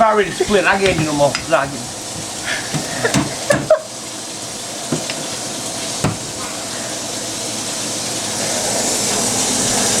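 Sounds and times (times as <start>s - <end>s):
steady hissing: 0.0s - 7.3s
light knocks: 0.2s - 3.8s, 6.0s - 6.4s.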